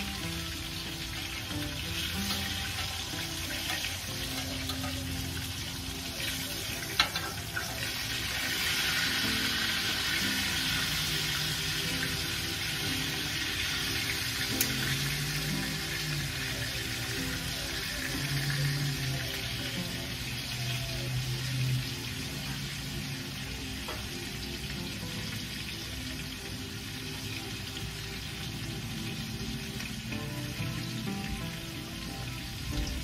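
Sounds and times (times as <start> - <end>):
chicken sizzling in a skillet: 0.0 - 33.0.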